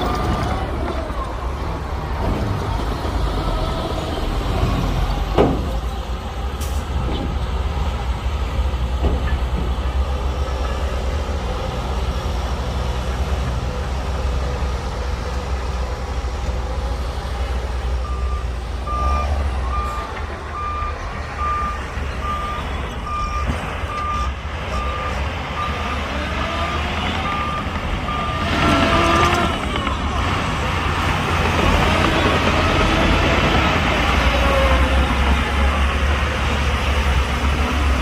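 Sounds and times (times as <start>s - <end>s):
diesel machinery rumbling: 0.0s - 38.0s
reversing alarm beeping: 18.0s - 29.4s.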